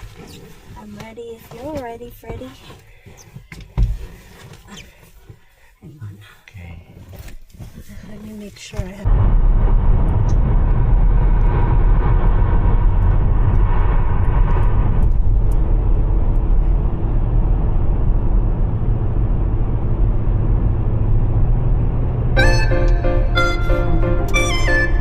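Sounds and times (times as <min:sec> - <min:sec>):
vehicle engine rumble: 0:07.6 - 0:25.0
higher hum: 0:22.3 - 0:25.0.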